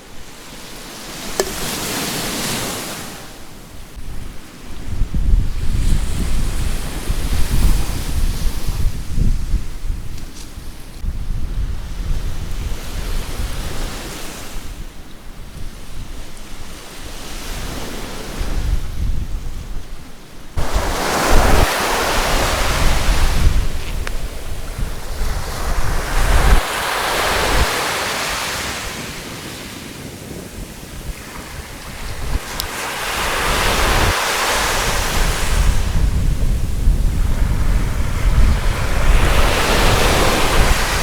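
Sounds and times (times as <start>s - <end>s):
sea waves breaking on beach: 0.0s - 4.0s, 20.5s - 41.0s
wind buffeting microphone: 3.7s - 14.0s, 14.6s - 41.0s.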